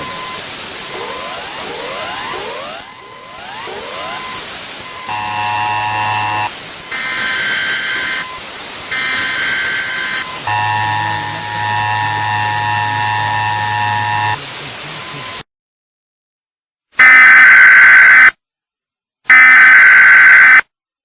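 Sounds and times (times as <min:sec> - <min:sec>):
low harsh buzzing tone: 0:00.0 - 0:15.4
static hiss: 0:00.0 - 0:15.4.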